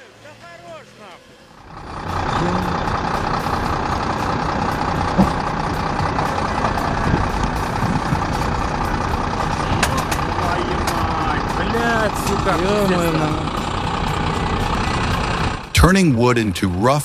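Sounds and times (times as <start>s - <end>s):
heavy engine running: 1.5s - 17.0s.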